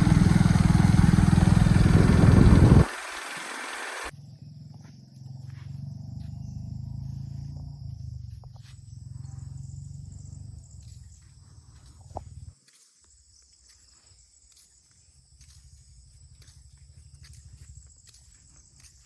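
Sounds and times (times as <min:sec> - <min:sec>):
motorcycle engine noise: 0:00.0 - 0:04.1
crickets and insects trilling: 0:00.0 - 0:12.2.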